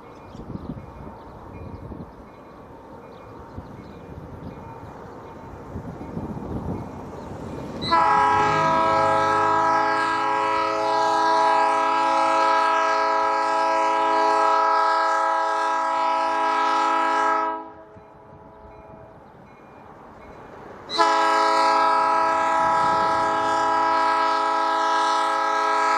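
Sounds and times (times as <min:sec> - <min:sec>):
locomotive air horn blast: 0:07.8 - 0:17.9, 0:20.9 - 0:25.9.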